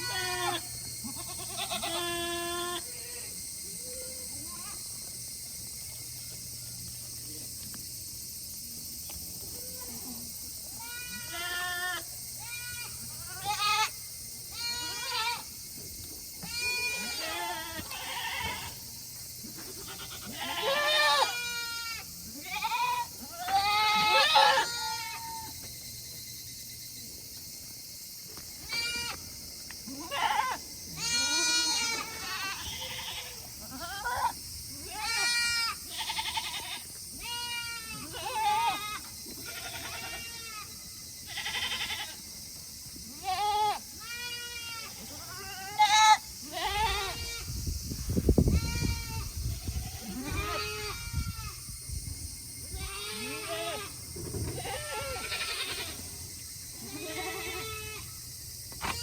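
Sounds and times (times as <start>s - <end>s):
goats bleating: 0.0s - 3.3s, 10.8s - 15.5s, 16.4s - 18.8s, 19.6s - 25.5s, 28.7s - 29.2s, 29.9s - 40.7s, 41.3s - 42.2s, 43.1s - 47.4s, 48.6s - 51.6s, 52.8s - 56.1s, 56.8s - 58.0s.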